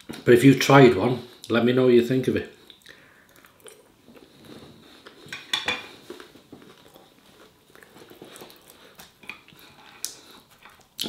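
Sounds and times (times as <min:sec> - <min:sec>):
man chewing food: 0:02.6 - 0:11.0.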